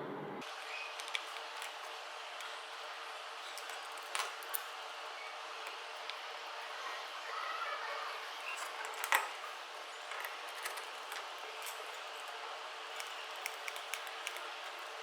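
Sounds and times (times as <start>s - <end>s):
plastic and metal parts clicking: 10.1s - 15.0s.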